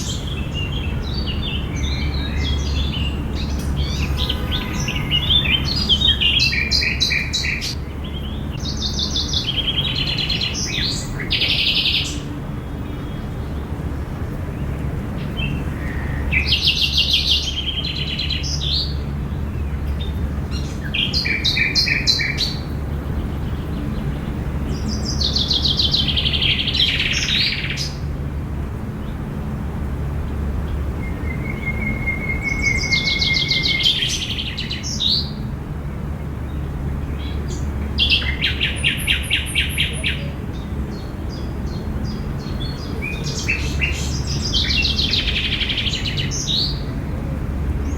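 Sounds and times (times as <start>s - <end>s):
songbirds chirping: 0.0s - 47.9s
thin held bird whistle: 31.1s - 34.1s.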